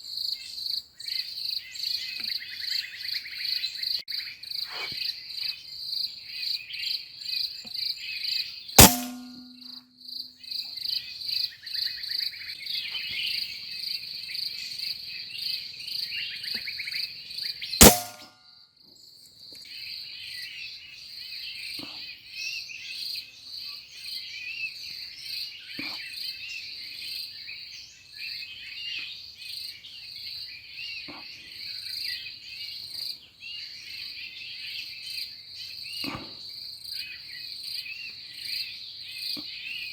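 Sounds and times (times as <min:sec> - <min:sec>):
air rifle shots: 0:08.8 - 0:09.6, 0:17.8 - 0:18.3.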